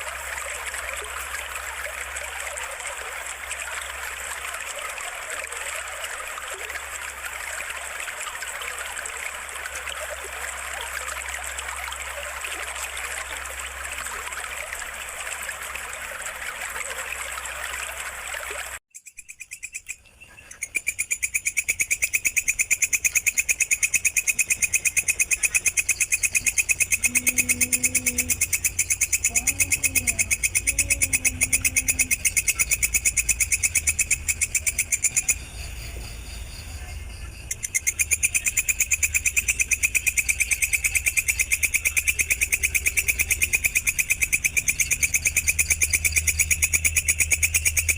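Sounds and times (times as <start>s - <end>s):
water trickling: 0.0s - 47.9s
insect chirping: 18.9s - 47.9s.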